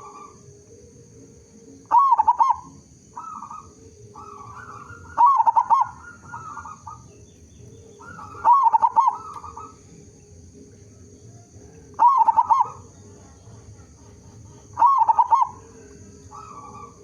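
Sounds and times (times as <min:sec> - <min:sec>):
dove cooing: 0:00.0 - 0:17.0.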